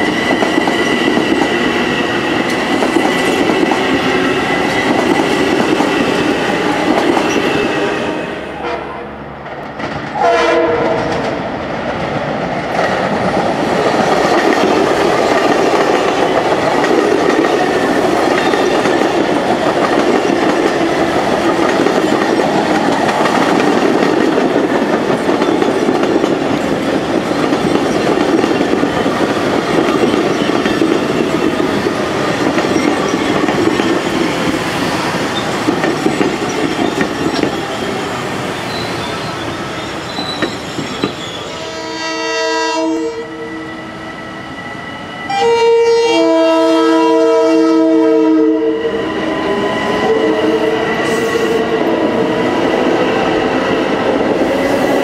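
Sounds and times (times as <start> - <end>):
train rumbling: 0.0 - 55.0
train horn: 7.6 - 9.2, 10.2 - 11.3, 41.4 - 44.1, 45.3 - 51.7.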